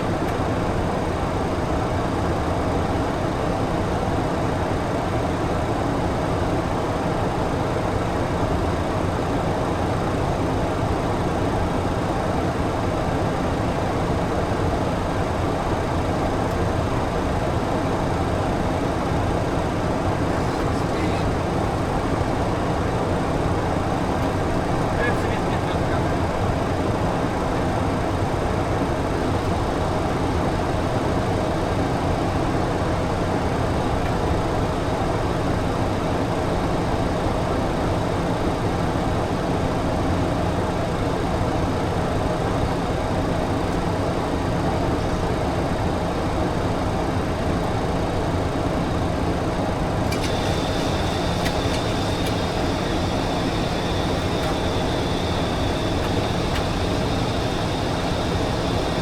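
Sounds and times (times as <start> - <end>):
airflow hiss in cockpit: 20.1 - 22.7, 23.7 - 27.1, 50.0 - 59.0
faint high whine: 20.3 - 22.8, 50.0 - 59.0
click: 50.0 - 59.0
low hum: 50.2 - 59.0.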